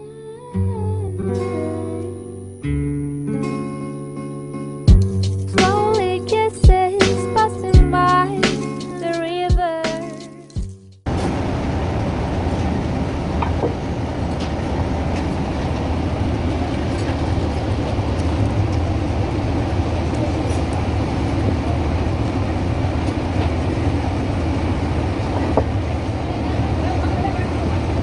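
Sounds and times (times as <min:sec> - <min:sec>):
boat engine droning: 0:11.1 - 0:28.0.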